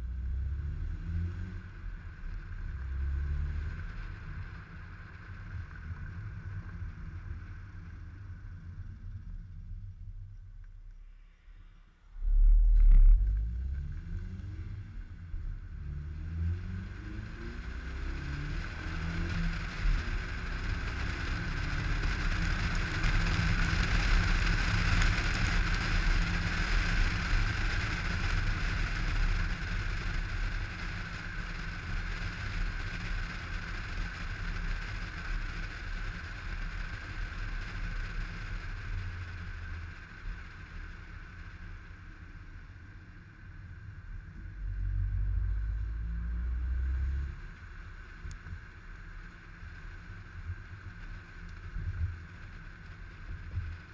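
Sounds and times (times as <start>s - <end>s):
road and wind noise: 0.0s - 53.9s
car engine accelerating: 12.2s - 30.3s.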